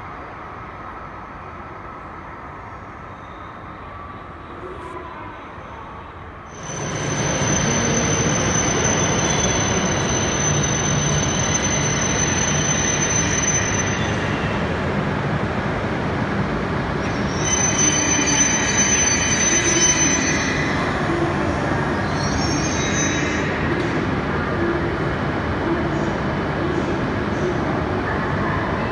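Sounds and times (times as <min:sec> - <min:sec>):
high train whine: 0:00.0 - 0:28.9
train rolling rumble: 0:06.5 - 0:28.9.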